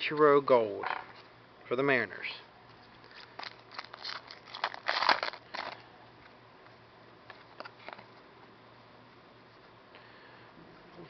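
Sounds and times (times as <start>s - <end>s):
card pack wrapper crinkling and tearing: 3.0s - 5.9s.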